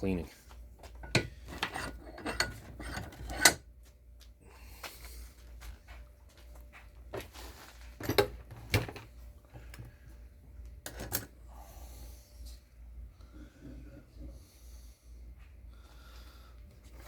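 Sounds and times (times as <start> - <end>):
low steady hum: 0.0 - 17.0
hard objects clunking and rattling: 0.8 - 3.6, 7.9 - 9.8.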